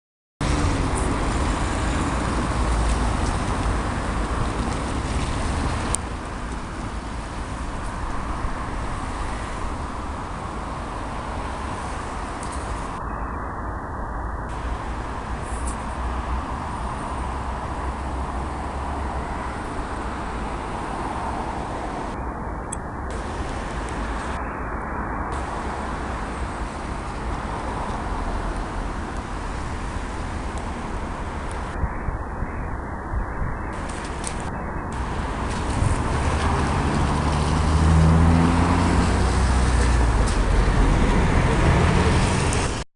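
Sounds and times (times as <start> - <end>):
river rushing roar: 0.4 - 13.1, 14.5 - 31.8, 33.7 - 42.8
low rumble: 0.4 - 42.8
vehicle engine running: 33.8 - 42.8.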